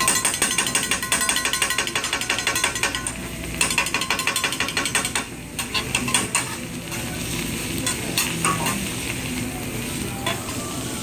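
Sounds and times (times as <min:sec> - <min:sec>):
metal spatulas clacking on griddle: 0:00.0 - 0:07.1, 0:07.8 - 0:08.8
food sizzling on hot plate: 0:00.0 - 0:11.0.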